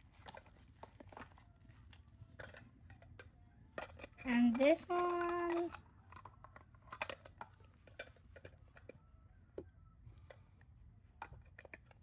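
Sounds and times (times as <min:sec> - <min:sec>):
plastic toy pieces clicking: 0:00.1 - 0:09.0.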